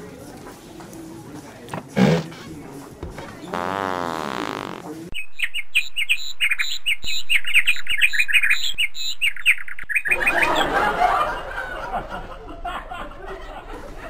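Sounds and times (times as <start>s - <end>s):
hubbub of voices: 0.0s - 3.6s
small bird chirping: 5.1s - 10.2s.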